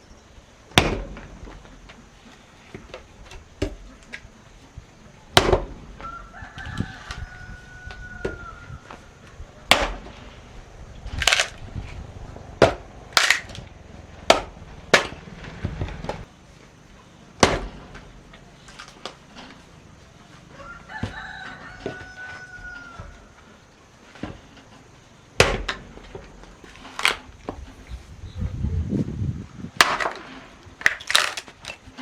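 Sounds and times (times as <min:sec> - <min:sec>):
sharp irregular knocks: 0:00.8 - 0:02.0, 0:05.3 - 0:06.1, 0:09.7 - 0:10.3, 0:12.6 - 0:16.3, 0:25.4 - 0:26.4
rooster crowing: 0:05.9 - 0:09.7, 0:20.2 - 0:23.6.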